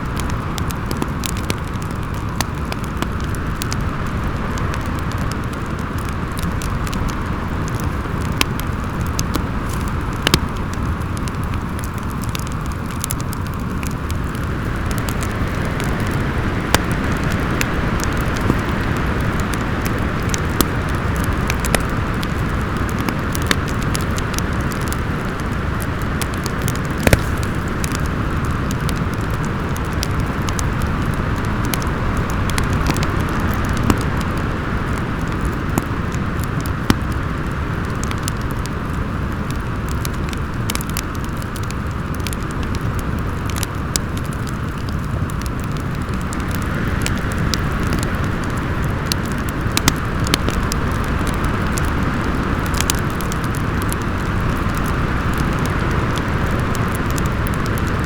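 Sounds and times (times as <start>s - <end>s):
wood fire crackling and popping: 0.0s - 58.0s
wind howling: 24.5s - 34.9s.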